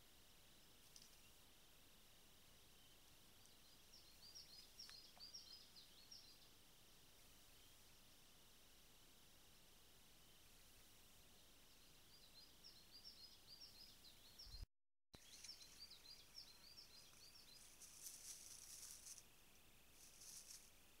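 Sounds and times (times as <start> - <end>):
small bird chirping: 0.5 - 1.5, 2.4 - 8.1, 10.2 - 20.9
high hissing rustle: 15.3 - 20.8.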